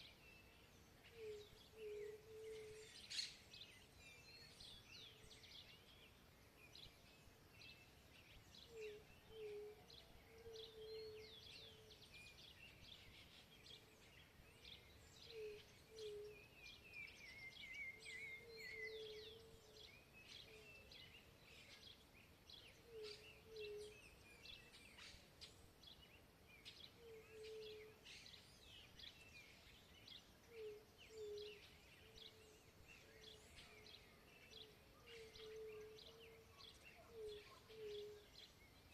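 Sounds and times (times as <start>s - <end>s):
low cooing bird call: 1.1s - 3.4s, 8.6s - 13.1s, 14.6s - 21.9s, 22.5s - 25.2s, 26.7s - 28.4s, 30.5s - 38.6s.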